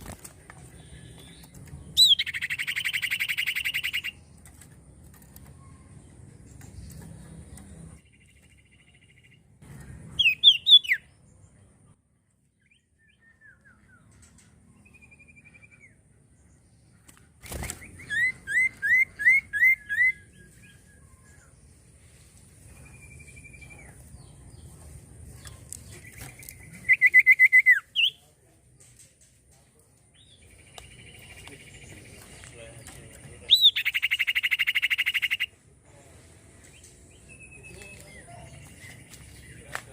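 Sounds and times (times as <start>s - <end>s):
bird song bursts: 0.6s - 4.4s, 5.4s - 24.7s, 25.9s - 28.3s, 30.1s - 35.6s
bird whistles: 2.0s - 4.2s, 10.2s - 11.0s, 26.8s - 28.2s.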